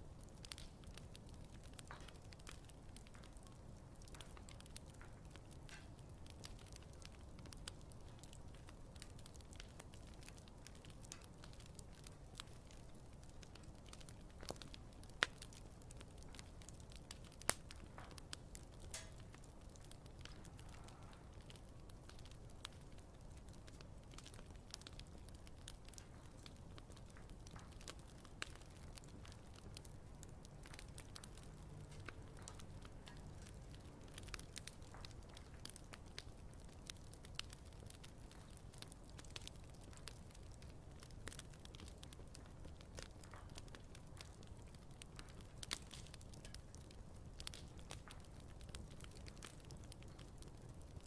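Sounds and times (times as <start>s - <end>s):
faint low rumble: 0.0s - 39.2s
campfire crackling: 0.0s - 51.0s.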